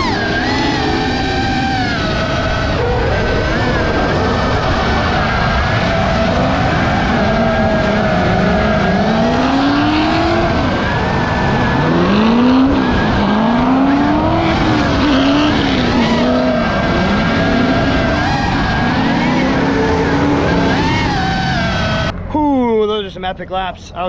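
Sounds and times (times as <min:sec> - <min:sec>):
car engine revving hard: 0:00.0 - 0:22.1.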